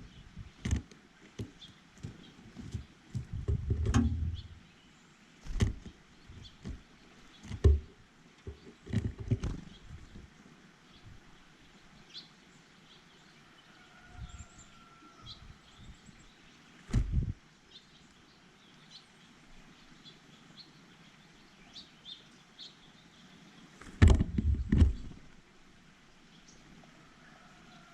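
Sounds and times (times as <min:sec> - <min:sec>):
knocks and taps at bird feeder: 0:00.6 - 0:04.6, 0:07.4 - 0:09.6
heavier thumps: 0:01.4 - 0:04.6, 0:05.5 - 0:06.9, 0:07.5 - 0:07.9, 0:16.9 - 0:17.3, 0:23.9 - 0:25.1.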